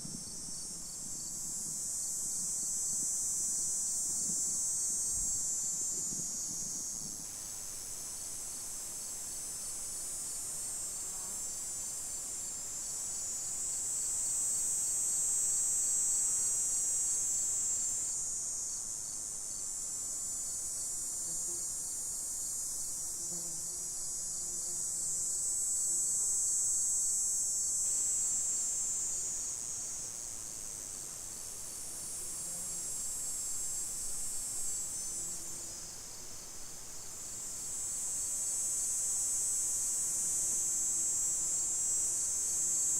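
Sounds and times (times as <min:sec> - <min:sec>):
insects trilling: 0:20.5 - 0:42.9.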